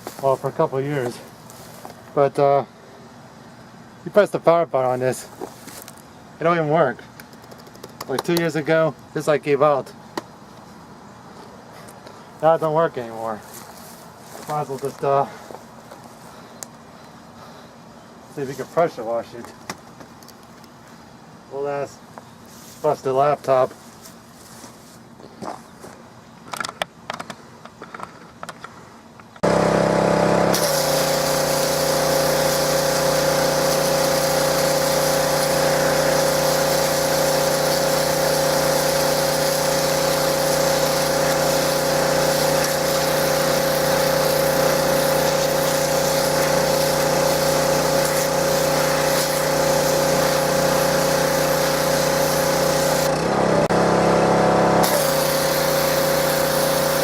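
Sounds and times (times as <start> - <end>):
pressure washer engine running: 29.4 - 57.0
high-pressure spray hissing: 30.5 - 53.2, 54.8 - 57.0.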